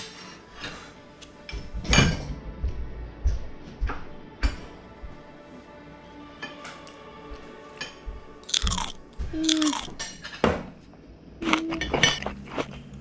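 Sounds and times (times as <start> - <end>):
child chewing and crunching: 8.4 - 10.0, 11.4 - 13.0.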